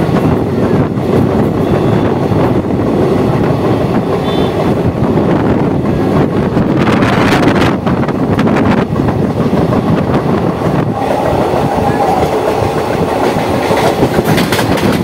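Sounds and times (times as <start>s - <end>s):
train wheels rumbling on rails: 0.0s - 15.0s
clicks over rail joints: 13.2s - 15.0s.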